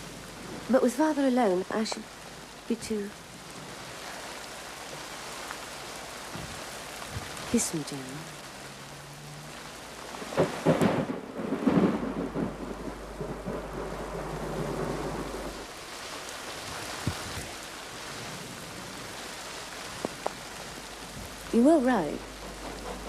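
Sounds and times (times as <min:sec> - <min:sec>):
steady rain: 0:00.0 - 0:23.0
thunder rumbling: 0:09.8 - 0:23.0.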